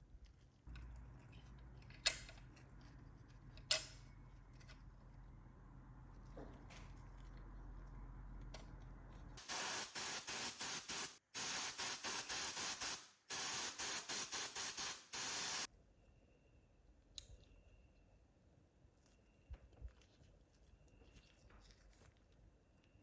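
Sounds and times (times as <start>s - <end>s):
aerosol spray can hissing: 9.4s - 15.7s.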